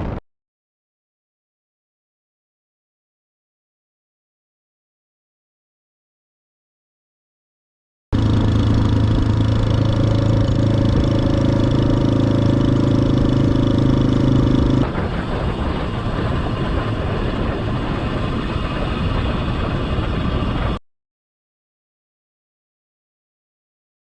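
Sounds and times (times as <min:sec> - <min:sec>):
wind rush: 0:00.0 - 0:00.2, 0:08.2 - 0:20.8
motorcycle engine running: 0:08.2 - 0:20.8.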